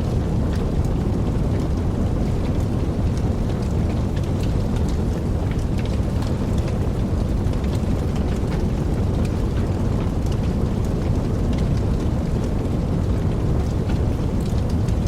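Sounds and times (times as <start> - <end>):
fire crackling and popping: 0.0 - 15.0
fire roaring: 0.0 - 15.0.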